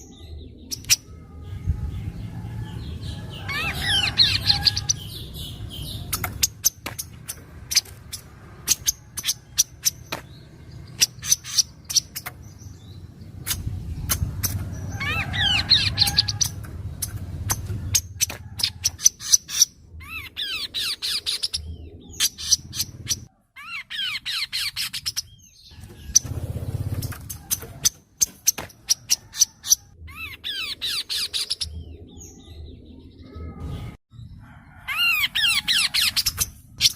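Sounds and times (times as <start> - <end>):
bird singing chip notes and trills: 0.0 - 34.4.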